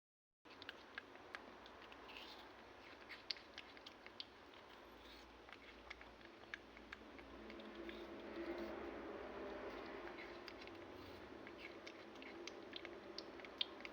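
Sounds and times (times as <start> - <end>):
low hum: 7.1 - 13.9.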